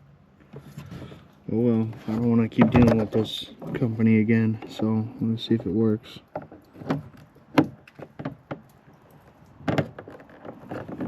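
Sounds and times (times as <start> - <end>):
plastic clicks and knocks: 9.4 - 11.0.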